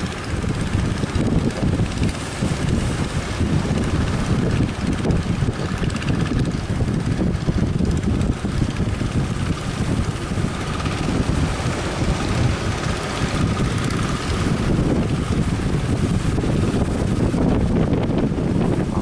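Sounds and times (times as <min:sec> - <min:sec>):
faint boat engines: 0:00.0 - 0:19.0
wind buffeting microphone: 0:00.0 - 0:19.0.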